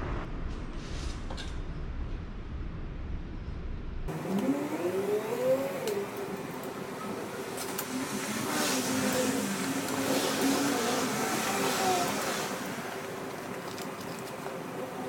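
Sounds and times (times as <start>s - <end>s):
steady low rumble: 0.0s - 4.2s
vehicle engine revving: 4.1s - 14.2s.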